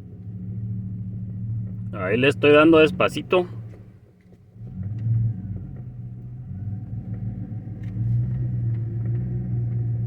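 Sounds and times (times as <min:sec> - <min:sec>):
pickup engine low hum: 0:00.0 - 0:10.0.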